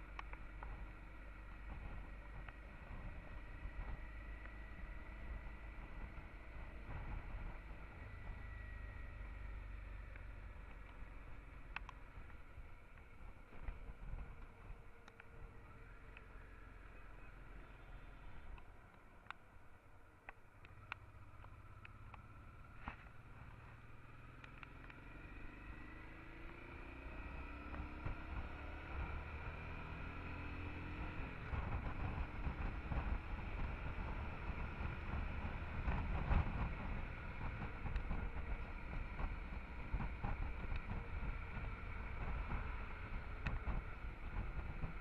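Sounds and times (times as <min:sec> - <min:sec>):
motorcycle engine accelerating: 0:00.0 - 0:45.0
road rumble: 0:00.0 - 0:45.0.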